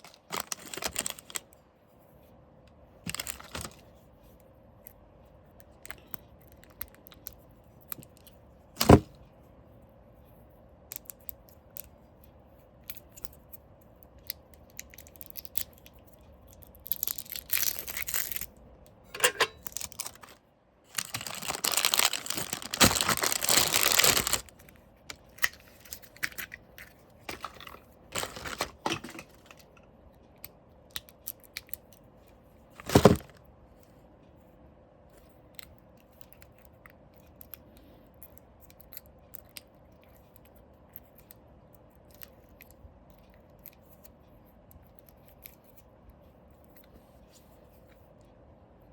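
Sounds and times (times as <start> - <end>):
packaging crinkling and tearing: 0.0 - 1.5, 3.1 - 3.8, 16.7 - 18.5, 19.5 - 26.6, 27.3 - 29.6, 32.8 - 33.4.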